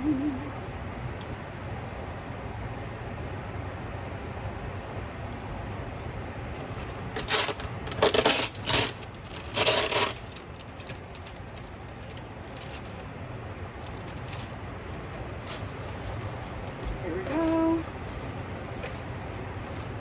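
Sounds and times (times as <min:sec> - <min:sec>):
low kitchen hum: 0:00.0 - 0:20.0
plastic container crinkling: 0:06.8 - 0:13.1, 0:13.8 - 0:20.0.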